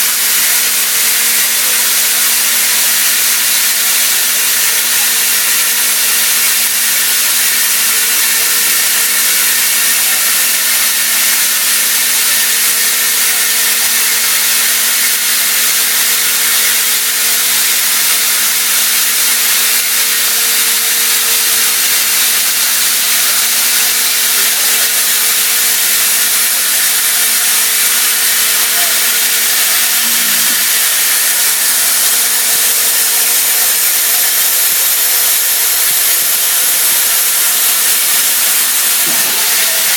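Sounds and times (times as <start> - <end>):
milling machine cutting metal: 0.0 - 39.9
machine hum: 25.7 - 33.0.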